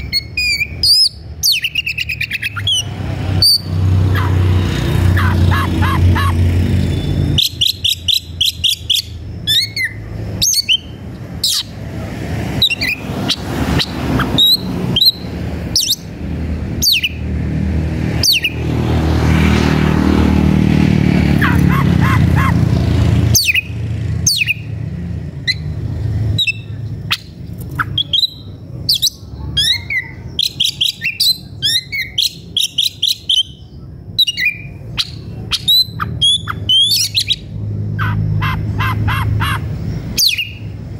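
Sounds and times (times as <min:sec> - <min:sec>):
bird singing whistles and chatters: 0:00.0 - 0:03.8, 0:06.8 - 0:11.8, 0:25.4 - 0:40.8.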